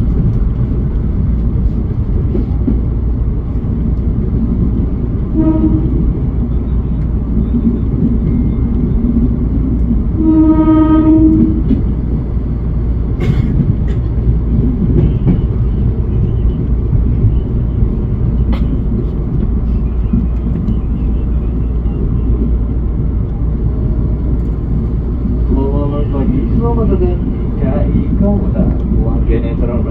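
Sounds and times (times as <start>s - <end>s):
electric train rumbling: 0.0s - 29.9s
train horn: 5.3s - 6.1s, 10.1s - 11.8s.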